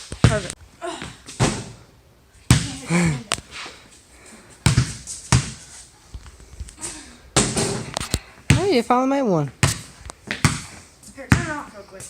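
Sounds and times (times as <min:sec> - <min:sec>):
basketball bouncing: 0:00.2 - 0:00.5, 0:02.5 - 0:02.8, 0:04.6 - 0:05.6, 0:07.4 - 0:07.9, 0:08.5 - 0:08.8, 0:09.6 - 0:11.7.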